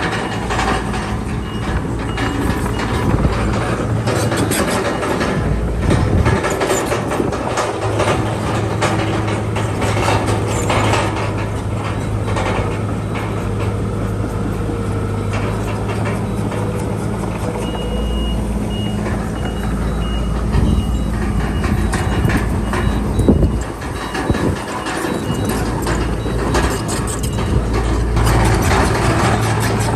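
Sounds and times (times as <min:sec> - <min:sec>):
diesel earthmoving machine running: 0:00.0 - 0:29.9
metallic clanking: 0:00.0 - 0:29.9
reversing alarm beeping: 0:00.0 - 0:29.9.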